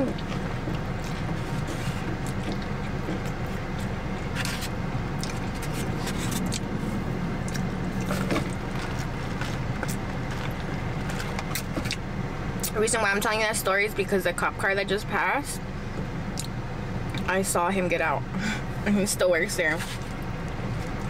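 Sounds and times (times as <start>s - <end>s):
chewing noodles with wet clicks: 5.2s - 5.4s.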